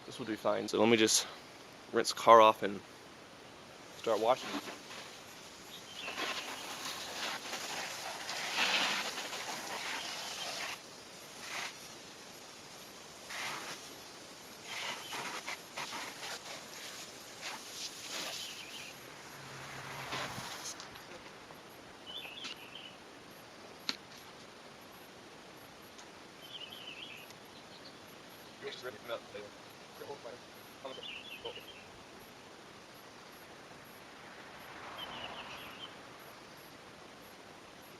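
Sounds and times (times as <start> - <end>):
hiss: 3.8 - 21.0
garden hose spraying water on car: 3.9 - 21.0
warbling bird chirp: 5.6 - 7.6, 18.1 - 19.1.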